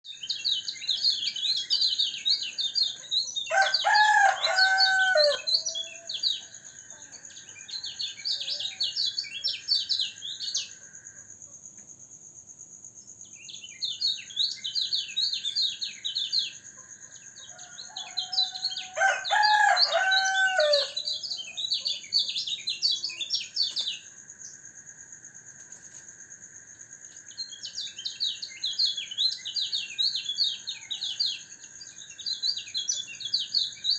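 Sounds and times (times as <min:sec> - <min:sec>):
rooster crowing: 0:03.5 - 0:06.3, 0:17.5 - 0:21.2.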